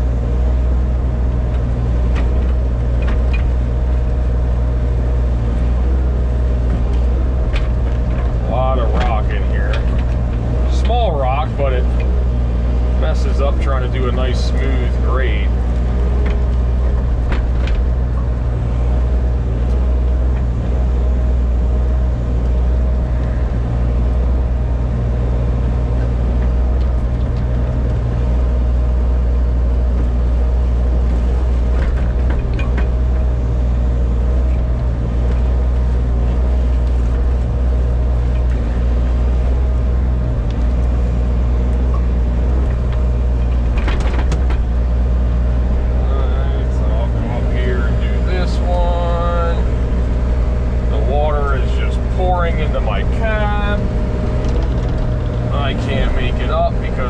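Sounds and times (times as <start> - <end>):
excavator diesel engine running: 0.0 - 57.0
faint clicks and knocks: 34.4 - 44.9, 53.9 - 56.2.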